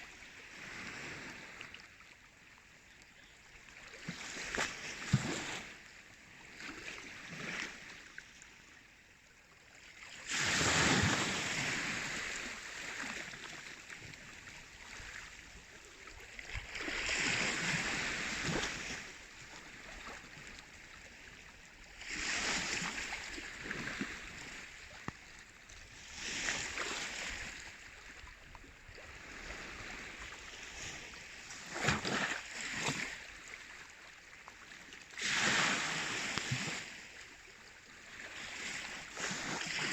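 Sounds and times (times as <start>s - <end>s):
sea waves washing in: 10.2s - 13.8s, 16.7s - 20.2s, 22.0s - 25.0s, 35.2s - 37.1s.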